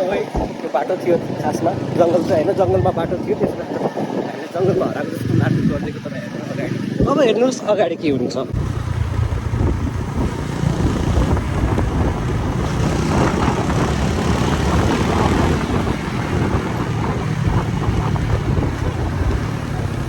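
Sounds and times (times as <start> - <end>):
wind buffeting microphone: 0.0 - 20.0
motorcycle engine rumble: 8.5 - 20.0.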